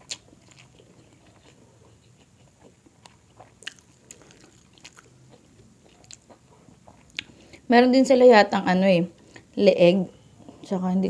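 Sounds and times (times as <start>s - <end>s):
chewing food: 0.0s - 7.6s.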